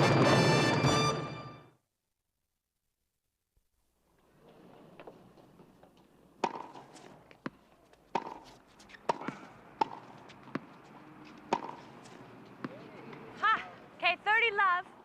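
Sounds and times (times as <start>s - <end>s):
tennis ball hit with rackets: 6.4s - 10.8s, 11.4s - 12.8s
tennis ball bouncing on court: 6.4s - 12.9s.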